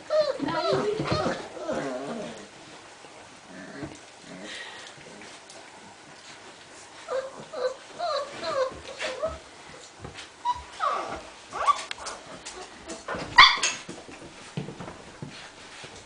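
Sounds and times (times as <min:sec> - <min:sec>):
puppies whimpering and yipping: 0:00.0 - 0:02.4, 0:07.0 - 0:09.4, 0:10.4 - 0:12.2
puppy yelp: 0:13.4 - 0:13.8.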